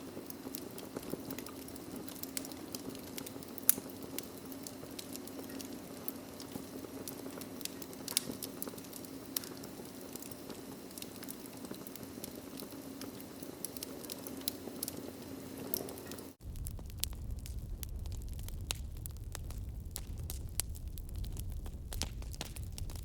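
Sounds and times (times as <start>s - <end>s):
wood fire crackling and popping: 0.0s - 23.0s
steady low hiss: 13.4s - 23.0s.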